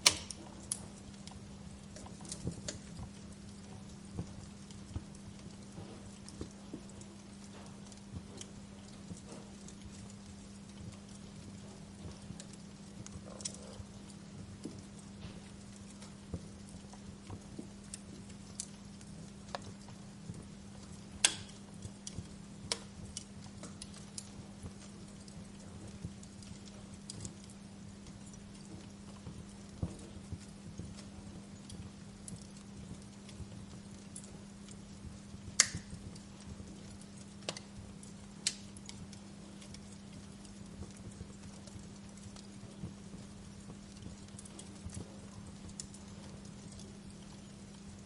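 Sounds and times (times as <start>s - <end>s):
low steady hum: 0.0s - 48.0s
wood fire crackling: 0.0s - 48.0s.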